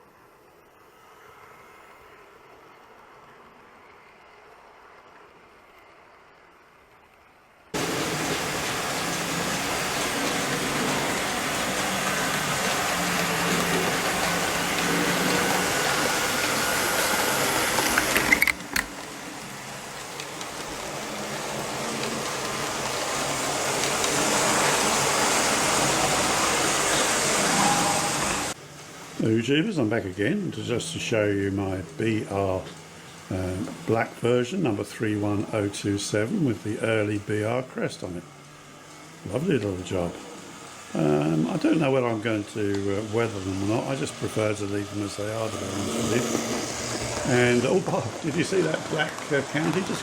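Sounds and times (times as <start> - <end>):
model train whirring on rails: 0.0 - 50.0.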